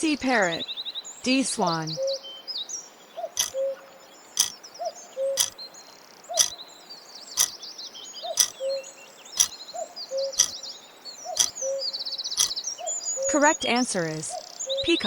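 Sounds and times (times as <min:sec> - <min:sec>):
birds chirping: 0:00.0 - 0:15.0
timer ticking: 0:05.4 - 0:05.6, 0:08.4 - 0:08.6.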